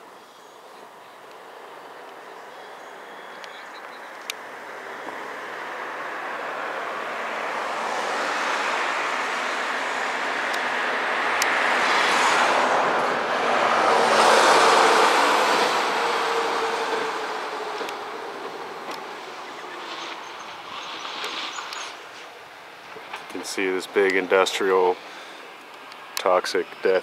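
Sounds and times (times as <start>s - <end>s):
truck driving past: 4.4s - 22.3s.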